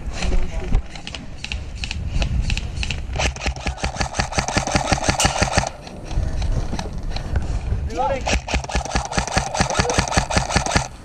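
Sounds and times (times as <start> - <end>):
electric rifle firing: 3.2 - 5.9, 8.3 - 11.0.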